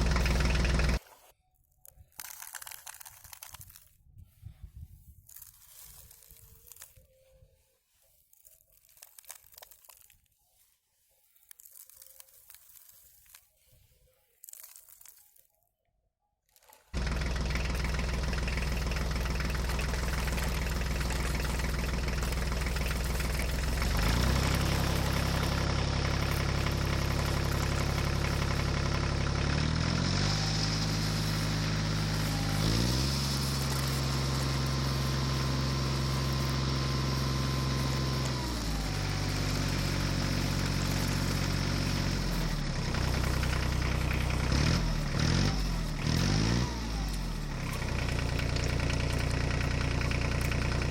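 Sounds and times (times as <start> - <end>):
vehicle engine revving: 0.0 - 1.0, 17.0 - 50.9.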